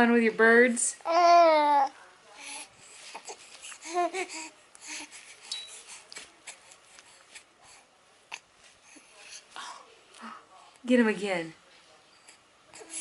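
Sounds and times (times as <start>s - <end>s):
baby cooing: 1.0s - 1.9s, 3.1s - 4.5s
soft clicks and rustles: 4.7s - 7.5s.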